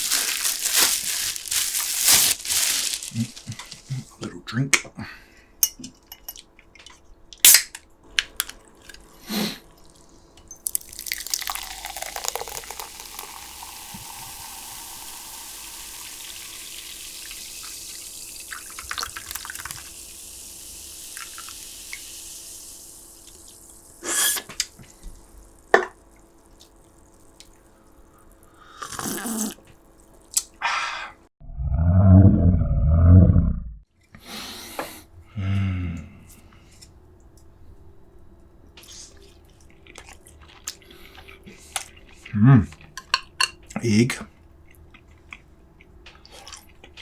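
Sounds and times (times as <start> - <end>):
drink pouring into glass: 8.4 - 29.6.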